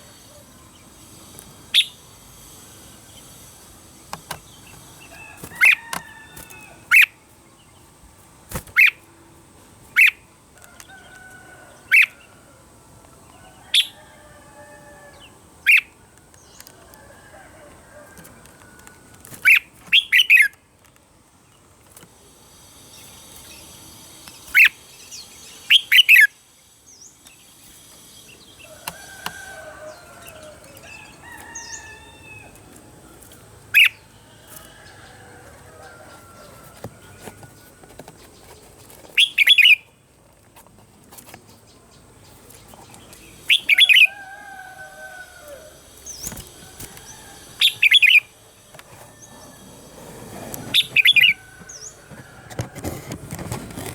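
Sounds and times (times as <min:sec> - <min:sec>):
bulbul singing: 0:00.7 - 0:07.9, 0:08.5 - 0:09.2, 0:33.6 - 0:37.5, 0:41.5 - 0:49.6, 0:50.7 - 0:52.5.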